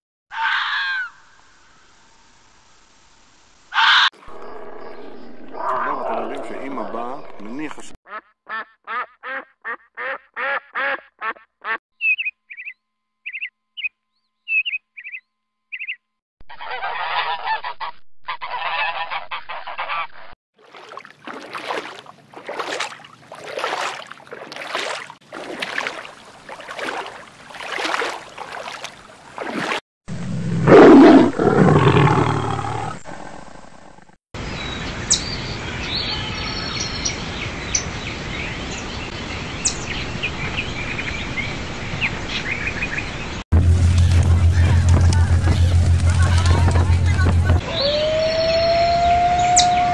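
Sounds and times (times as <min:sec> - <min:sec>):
small bird chirps: 0:12.0 - 0:16.0
honk-like animal calls: 0:16.5 - 0:20.3.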